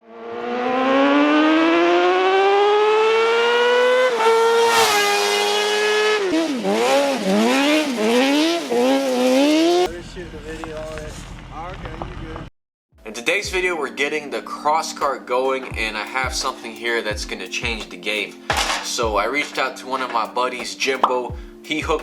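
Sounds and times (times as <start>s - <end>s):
motorbike engine revving: 0.0s - 12.5s.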